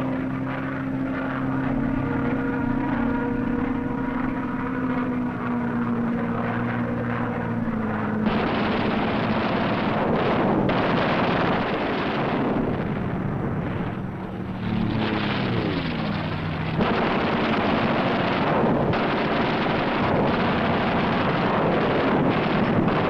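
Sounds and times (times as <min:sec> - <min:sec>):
fighter aircraft engine roar: 0:00.0 - 0:23.0
plane passing by: 0:00.0 - 0:23.0.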